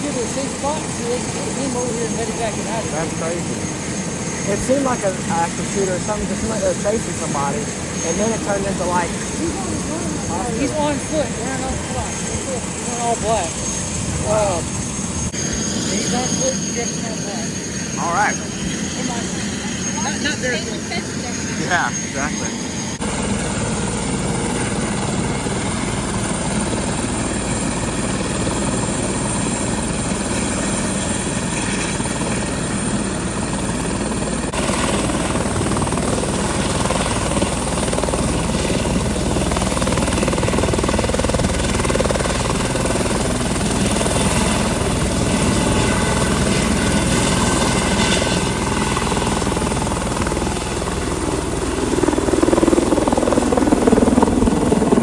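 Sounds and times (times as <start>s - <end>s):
helicopter turbine and rotor: 0.0s - 55.0s.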